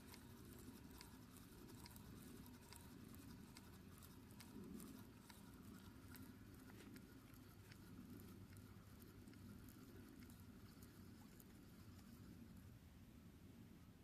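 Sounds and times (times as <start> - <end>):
light ticks: 0.0 - 12.4
faint low hum: 0.0 - 14.0.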